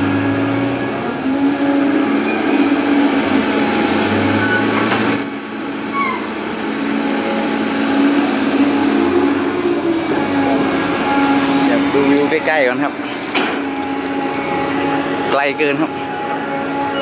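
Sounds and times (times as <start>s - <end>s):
heavy diesel machinery running: 0.0s - 17.0s
short high squeal: 4.4s - 6.3s.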